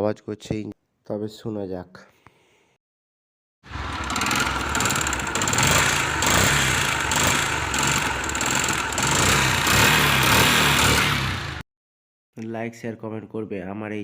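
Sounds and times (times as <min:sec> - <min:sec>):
motorcycle engine rattling: 0:03.7 - 0:11.6.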